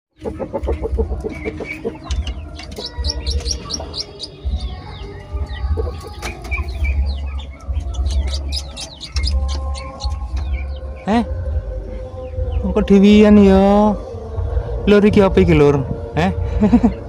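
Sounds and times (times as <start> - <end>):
baby squirrels squeaking: 0.2 - 11.1.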